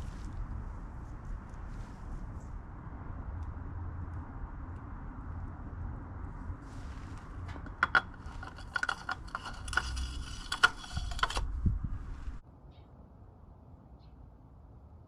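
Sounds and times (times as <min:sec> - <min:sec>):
metal tools clinking: 0:07.5 - 0:11.5.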